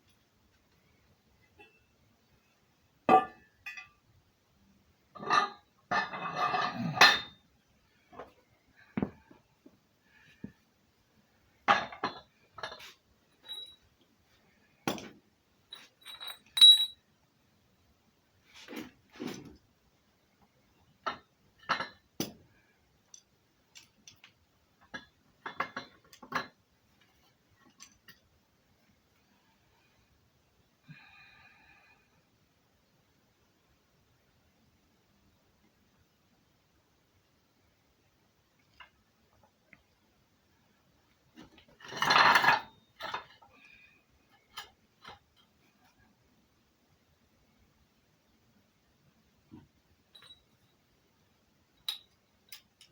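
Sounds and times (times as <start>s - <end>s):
metal clinks and knocks: 11.7s - 14.0s, 14.8s - 17.0s, 50.1s - 50.8s, 51.8s - 52.9s.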